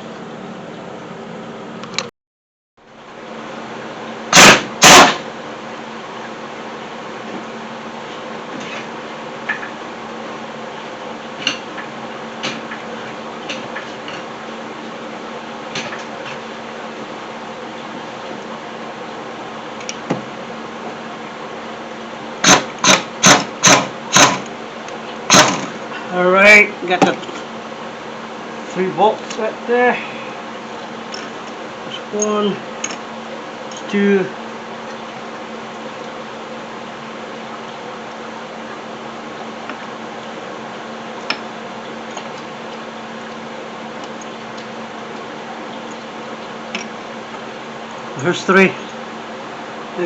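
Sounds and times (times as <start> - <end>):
steady low hum: 0.0 - 2.1, 2.8 - 50.0
sharp knocks: 22.4 - 24.4.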